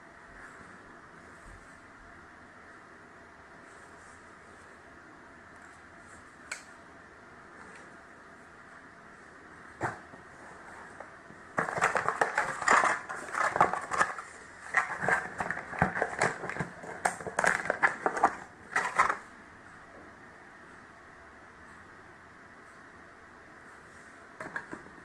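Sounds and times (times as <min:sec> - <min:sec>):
packaging crackling and rustling: 0:10.8 - 0:19.2.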